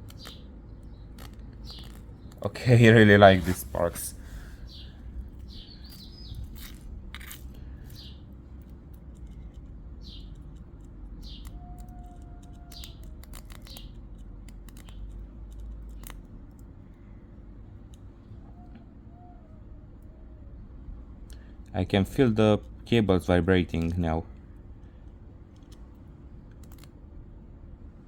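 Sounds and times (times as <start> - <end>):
birds chirping: 0.0 - 6.9, 7.6 - 8.4, 9.4 - 10.6, 11.2 - 14.0
steady low hum: 0.0 - 28.0.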